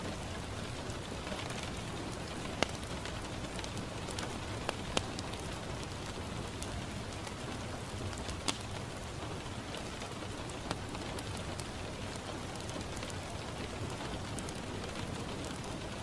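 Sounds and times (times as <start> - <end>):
rain on a window pane: 0.0 - 16.0
sharp ticks and pops: 2.5 - 6.2, 8.2 - 8.9.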